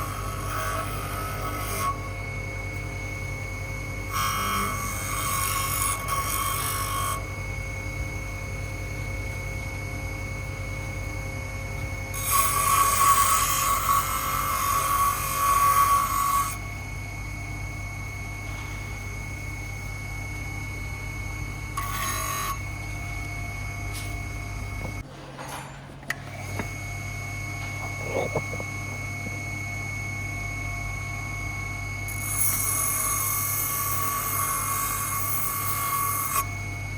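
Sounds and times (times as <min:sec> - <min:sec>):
grinding against workpiece: 0:27.8 - 0:29.3
power tool motor running: 0:32.1 - 0:36.6.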